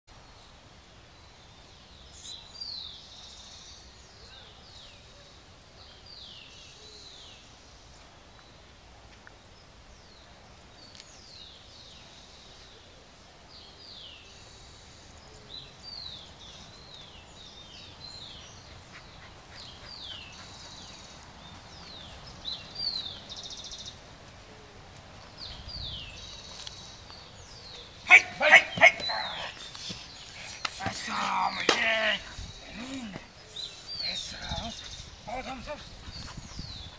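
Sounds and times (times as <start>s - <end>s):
birds chirping: 9.3s - 36.9s.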